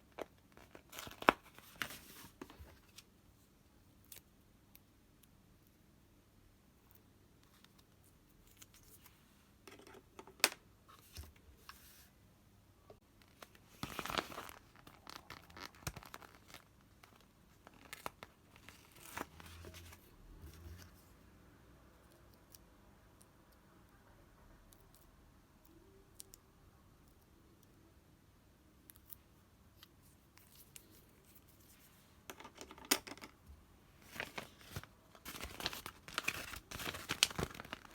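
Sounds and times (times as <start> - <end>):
paper tearing and crinkling: 34.1 - 37.9.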